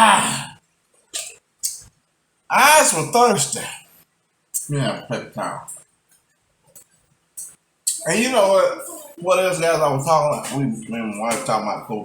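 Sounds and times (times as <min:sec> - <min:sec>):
person's falling vocal sound: 0:00.0 - 0:00.6.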